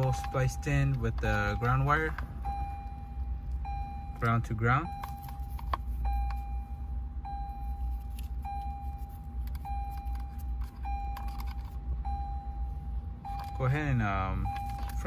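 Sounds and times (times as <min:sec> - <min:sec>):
dashboard warning chime: 0:00.0 - 0:15.0
low steady hum: 0:00.0 - 0:15.0.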